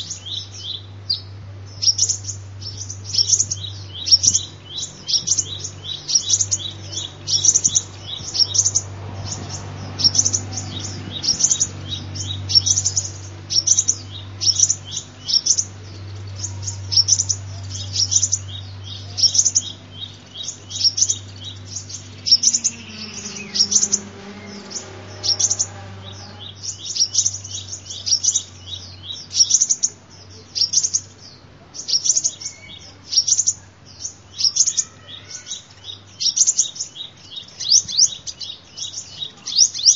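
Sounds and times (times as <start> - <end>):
bird chirping high and thin: 0.0 - 29.8
steady low hum: 0.0 - 31.7.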